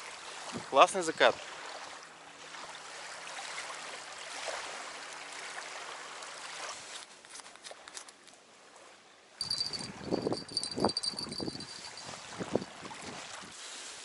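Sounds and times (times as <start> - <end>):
thin high ringing tone: 9.4 - 12.8.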